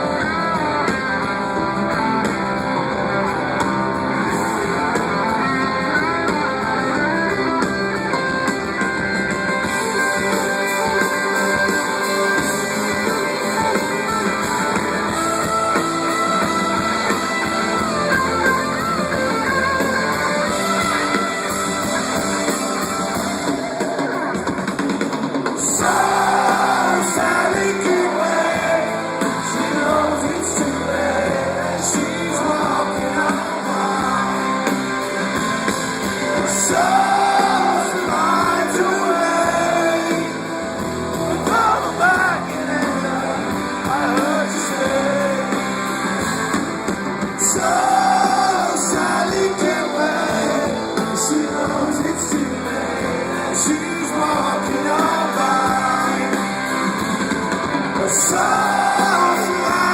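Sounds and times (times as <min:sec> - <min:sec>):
live rock band: 0:00.0 - 0:59.9
person singing: 0:25.6 - 0:35.3, 0:36.3 - 0:40.5, 0:41.4 - 0:45.8, 0:47.4 - 0:56.8, 0:58.0 - 0:59.9.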